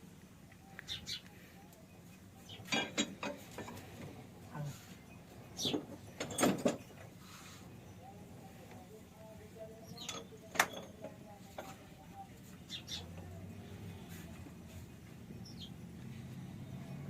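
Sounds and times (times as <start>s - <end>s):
metallic clanks and scrapes: 2.5s - 4.2s, 5.6s - 7.2s.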